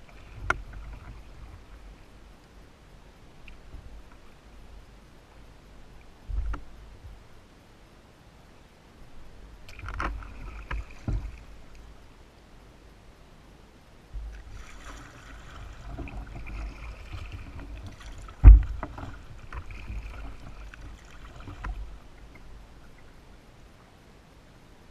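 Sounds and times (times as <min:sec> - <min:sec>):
paddle water splashing: 0:00.0 - 0:02.4, 0:09.6 - 0:12.1, 0:14.2 - 0:23.9.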